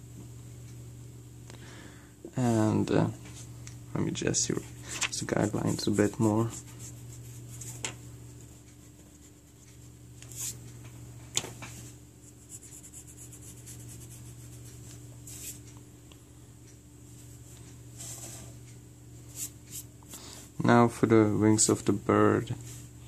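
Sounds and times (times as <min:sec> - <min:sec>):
low steady hum: 0:00.0 - 0:23.0
eraser rubbing on paper: 0:05.2 - 0:07.8, 0:12.2 - 0:15.6.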